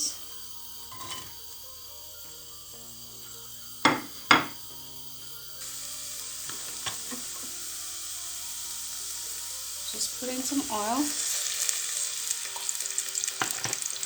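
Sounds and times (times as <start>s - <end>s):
onions sizzling in a pan: 0.0s - 14.0s
cookware knocks: 3.9s - 4.6s.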